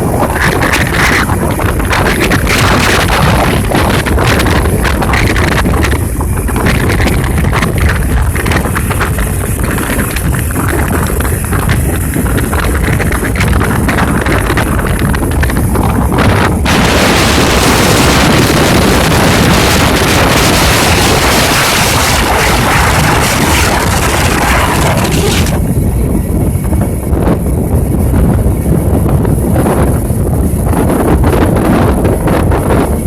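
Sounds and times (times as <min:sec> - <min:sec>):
rushing floodwater: 0:00.0 - 0:25.6
wind buffeting microphone: 0:00.0 - 0:33.0.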